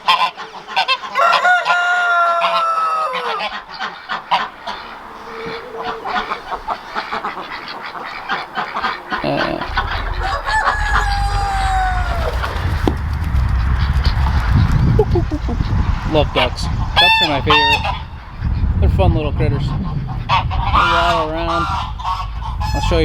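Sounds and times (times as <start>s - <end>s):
poultry clucking quacking and honking: 0.0s - 15.8s
rooster crowing: 0.8s - 13.6s
low rumble: 9.1s - 23.0s.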